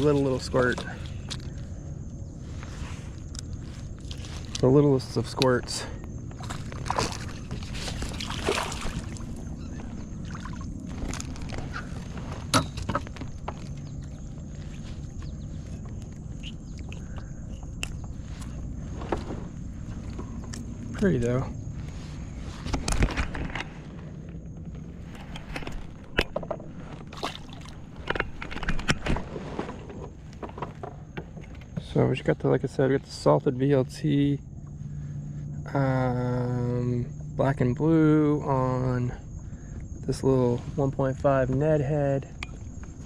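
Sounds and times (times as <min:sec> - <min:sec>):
water and wind rumble: 0:00.0 - 0:32.4.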